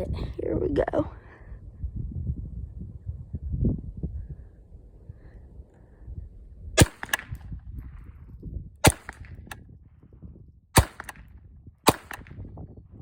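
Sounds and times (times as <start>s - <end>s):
rifle shots: 6.8s - 7.4s, 8.8s - 9.6s, 10.8s - 12.4s.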